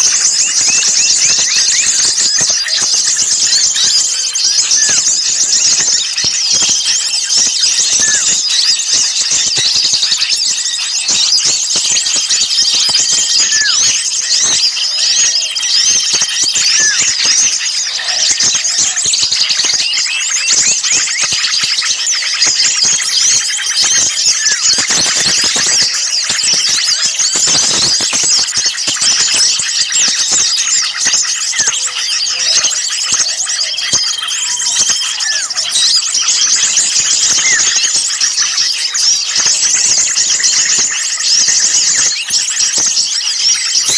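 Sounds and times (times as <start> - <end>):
small songbirds chirping: 0.0 - 43.9.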